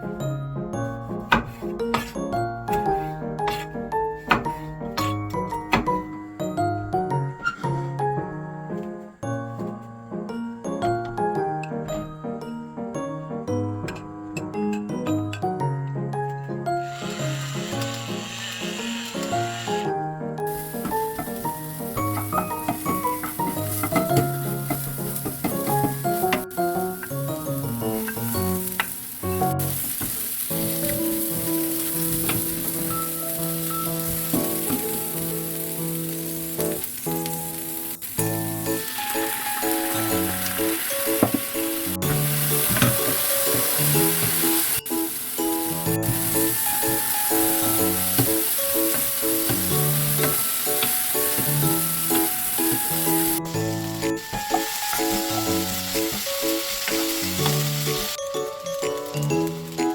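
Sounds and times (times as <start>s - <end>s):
background music: 0.0s - 59.9s
food sizzling in a frying pan: 16.8s - 19.9s, 20.5s - 59.9s.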